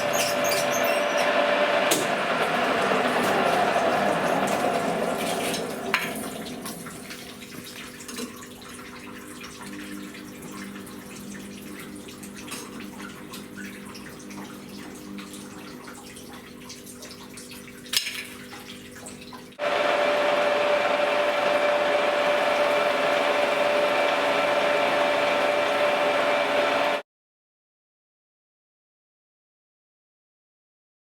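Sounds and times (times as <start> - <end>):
machine whine: 0.0 - 7.6, 19.6 - 27.0
machine hum: 0.0 - 7.8, 19.6 - 27.0.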